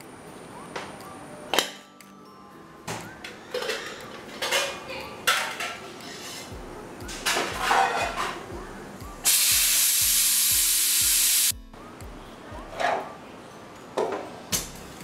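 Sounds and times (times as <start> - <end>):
pressure cooker steam hissing: 9.2 - 11.6.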